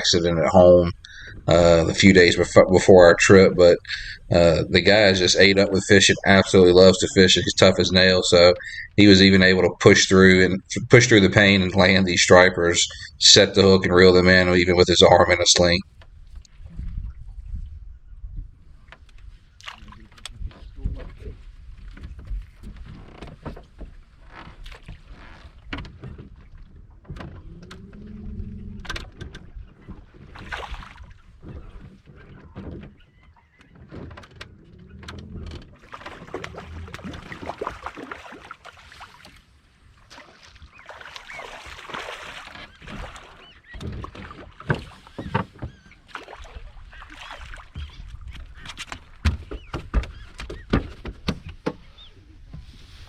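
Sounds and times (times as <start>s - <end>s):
knocks and thumps on boat hull: 47.8s - 52.0s.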